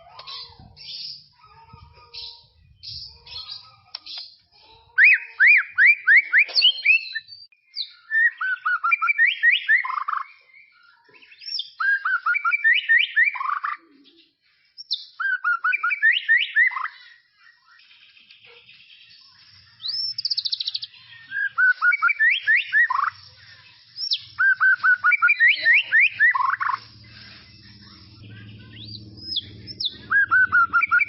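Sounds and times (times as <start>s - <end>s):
bird singing whistled notes: 5.0s - 23.3s, 24.0s - 31.0s.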